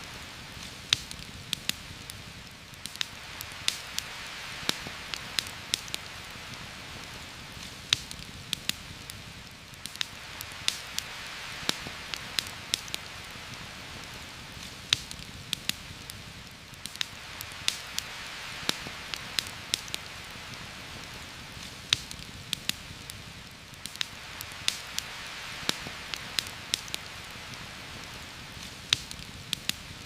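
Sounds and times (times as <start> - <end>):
campfire crackling: 0.0 - 30.0
heavy rain: 0.0 - 30.0.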